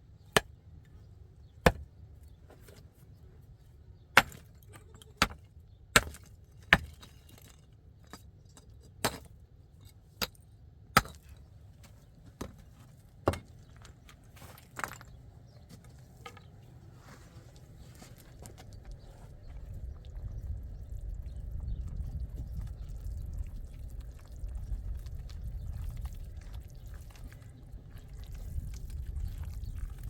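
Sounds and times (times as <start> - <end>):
faint low rumble: 16.7 - 30.0.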